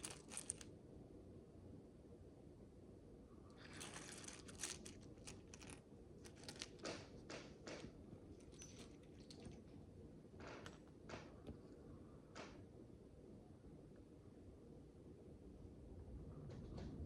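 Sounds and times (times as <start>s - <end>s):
plastic bricks clicking: 0.0s - 0.6s
short rustles: 0.0s - 0.6s, 3.6s - 6.8s.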